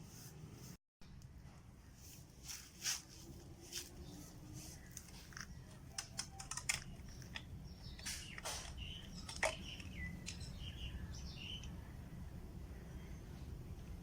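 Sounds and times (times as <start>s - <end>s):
birds chirping: 3.8s - 13.9s
sharp clicks: 5.0s - 10.6s.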